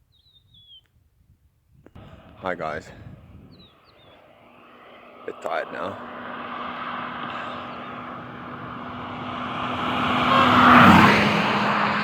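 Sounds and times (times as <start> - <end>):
vehicle driving past: 3.7 - 12.0.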